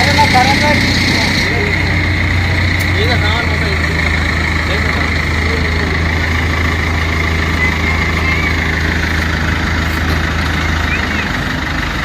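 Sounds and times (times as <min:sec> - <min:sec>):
large engine idling: 0:00.0 - 0:12.0.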